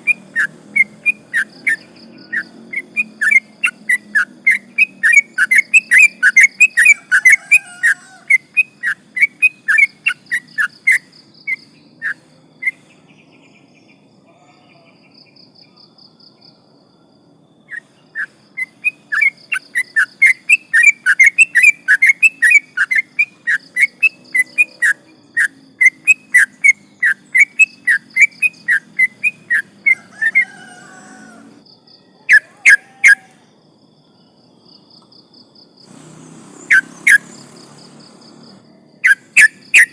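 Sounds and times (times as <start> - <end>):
bird chattering song: 0.0 - 16.6, 17.7 - 33.4, 34.8 - 39.9
loud sharp bird notes: 35.8 - 39.9.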